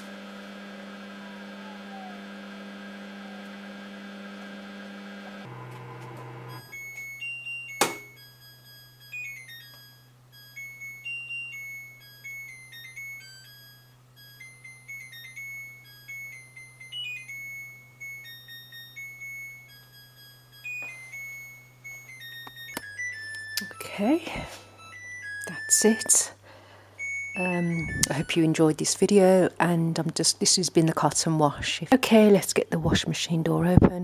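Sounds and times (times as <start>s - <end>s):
washing machine electronic beep melody: 5.5s - 24.2s, 24.8s - 26.2s, 27.0s - 28.6s
sharp click: 7.8s - 8.2s.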